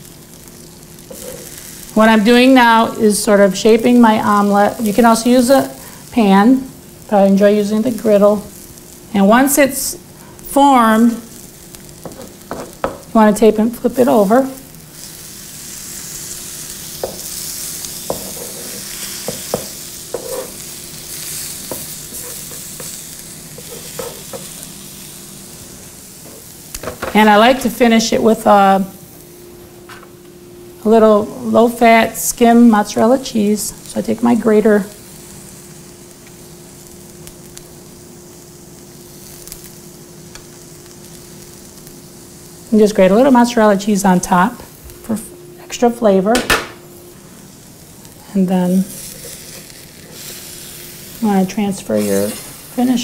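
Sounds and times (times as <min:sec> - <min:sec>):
omelette sizzling on a griddle: 0:00.0 - 0:29.5, 0:31.6 - 0:45.0, 0:46.8 - 0:53.0
spatula scraping and tapping griddle: 0:01.1 - 0:01.6, 0:12.0 - 0:13.1, 0:17.0 - 0:20.6, 0:21.4 - 0:24.6, 0:48.9 - 0:50.6.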